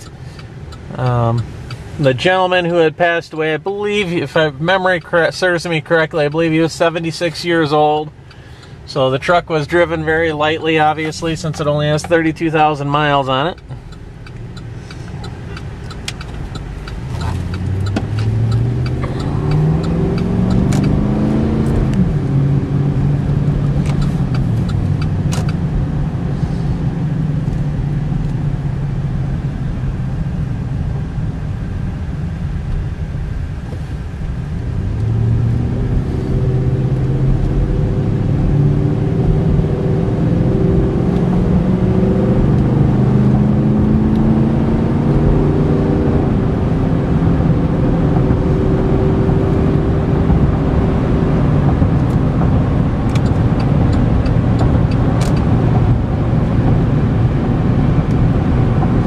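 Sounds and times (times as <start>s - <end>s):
road noise: 0.0s - 59.0s
truck engine accelerating: 8.9s - 31.2s, 34.2s - 59.0s.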